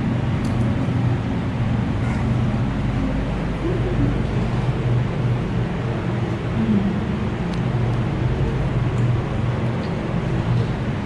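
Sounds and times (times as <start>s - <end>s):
restaurant background hum: 0.0s - 11.0s.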